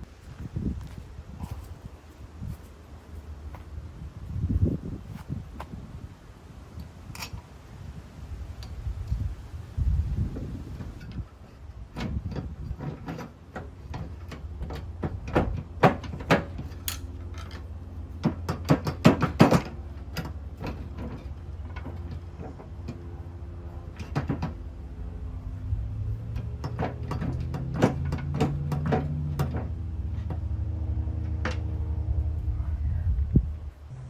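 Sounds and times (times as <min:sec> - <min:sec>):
hand tools clanking on metal: 0:11.0 - 0:24.6, 0:25.5 - 0:31.8.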